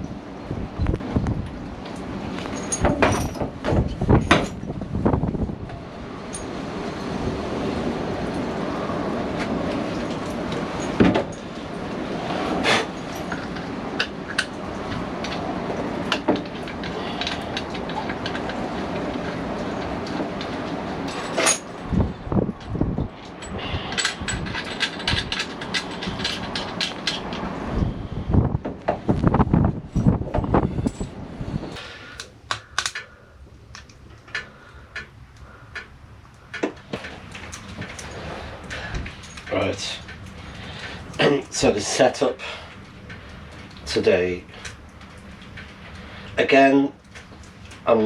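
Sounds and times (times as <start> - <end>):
rumbling clatter: 0.0 - 31.8
rushing background noise: 0.0 - 48.0
sharp clicks and knocks: 22.6 - 27.5, 32.2 - 33.1, 33.7 - 41.6
clicks of antenna parts fitted: 32.1 - 39.5.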